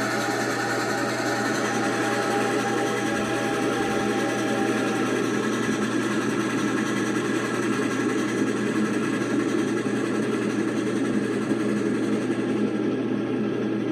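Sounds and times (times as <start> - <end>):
locomotive engine hum: 0.0 - 13.9.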